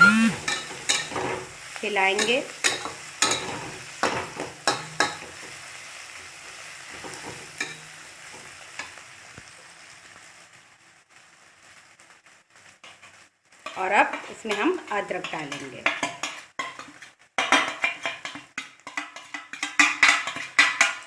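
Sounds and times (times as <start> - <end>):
vegetables sizzling in oil: 0.0 - 21.0
spatula scraping a pan: 2.2 - 5.6, 12.6 - 21.0.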